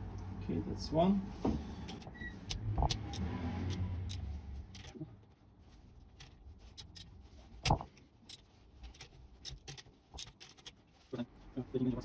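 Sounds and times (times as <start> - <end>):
metal tools clicking and clinking: 1.8 - 5.0, 6.2 - 10.8.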